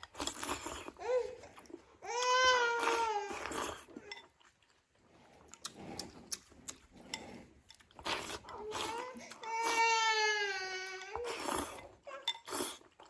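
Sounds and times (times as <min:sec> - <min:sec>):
child crying on a high pitch: 0:08.8 - 0:11.3.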